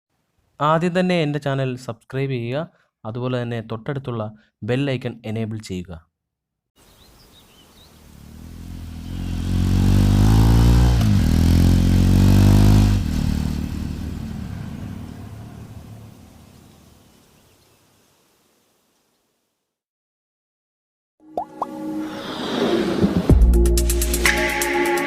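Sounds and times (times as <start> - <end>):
motorcycle riding past: 7.9 - 17.0.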